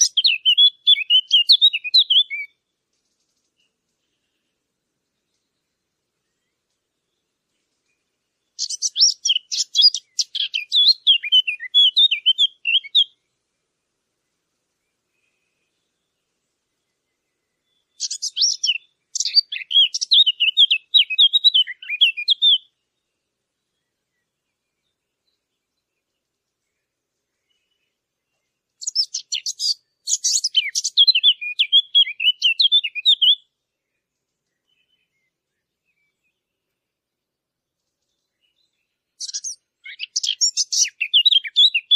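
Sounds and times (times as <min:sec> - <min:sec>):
songbird warbling: 0:00.0 - 0:02.6, 0:07.9 - 0:13.2, 0:17.1 - 0:22.8, 0:27.4 - 0:33.4, 0:38.3 - 0:41.9.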